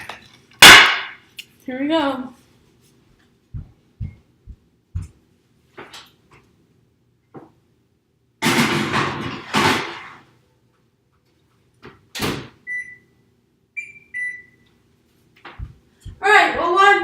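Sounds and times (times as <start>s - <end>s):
short electronic beeps: 13.8s - 14.6s.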